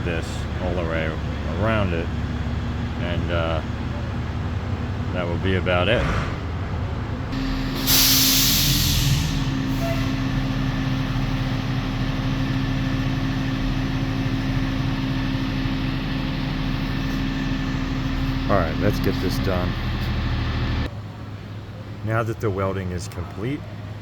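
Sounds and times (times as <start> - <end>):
steady machine hum: 0.0 - 20.9
welder sputtering and hissing: 7.4 - 10.2.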